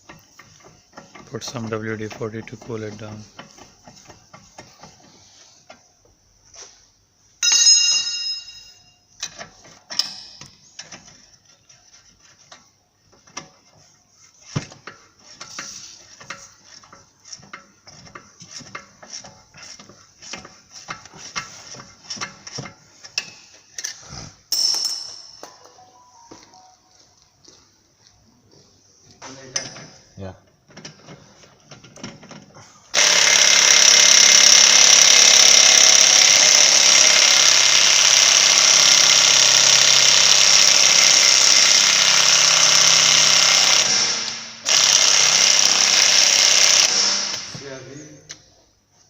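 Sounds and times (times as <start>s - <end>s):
metal clang: 7.4s - 11.1s, 24.5s - 25.6s.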